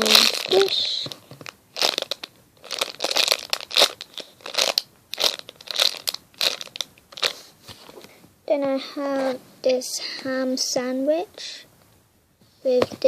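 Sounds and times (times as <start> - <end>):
squishy toy crinkly rustle: 0.0 - 7.4.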